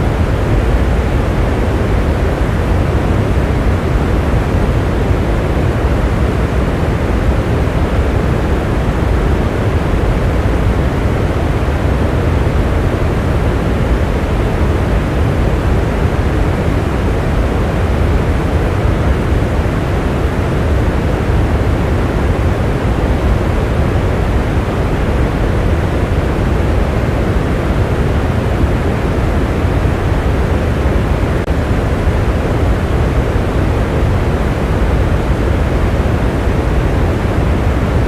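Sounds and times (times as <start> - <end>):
steady rain: 0.0 - 38.0.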